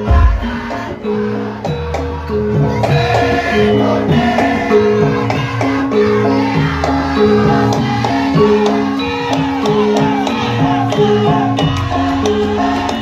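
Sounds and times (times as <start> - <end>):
drum strokes: 0.0 - 1.0.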